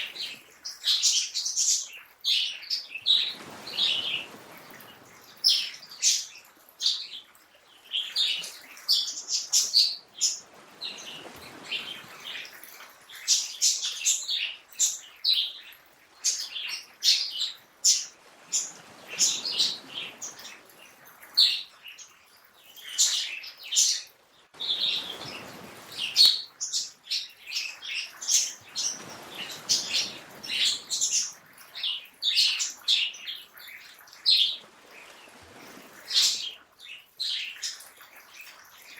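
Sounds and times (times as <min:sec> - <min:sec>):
birds chirping and singing: 0:22.8 - 0:34.6.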